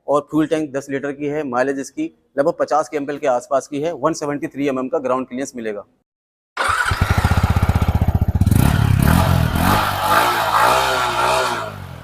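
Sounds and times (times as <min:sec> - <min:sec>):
motorcycle engine revving: 0:06.6 - 0:12.0.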